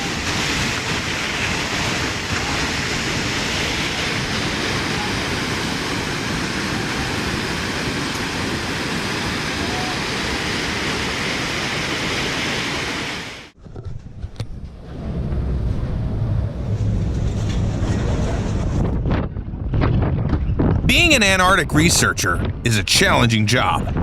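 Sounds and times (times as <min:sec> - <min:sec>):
wind rumble on microphone: 0:13.6 - 0:20.9.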